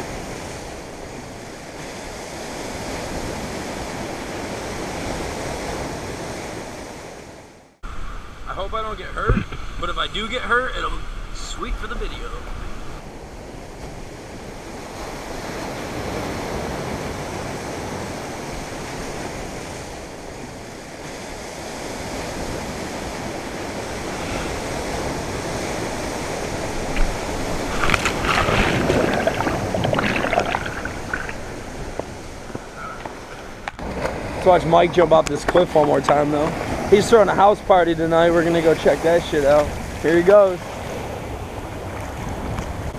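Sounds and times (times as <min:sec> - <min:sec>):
ocean waves on shore: 0:00.0 - 0:08.9, 0:11.1 - 0:42.9
wind buffeting microphone: 0:22.1 - 0:40.0.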